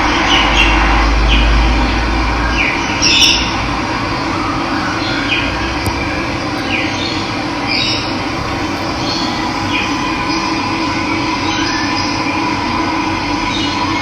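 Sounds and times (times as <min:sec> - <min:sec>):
bird calling high falling notes: 0:08.0 - 0:12.0.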